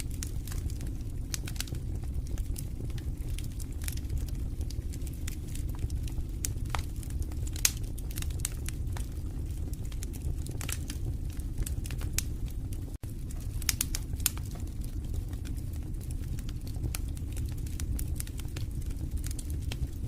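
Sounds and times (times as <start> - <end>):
fire rumbling in fireplace: 0.0 - 20.0
logs crackling and popping: 0.0 - 20.0.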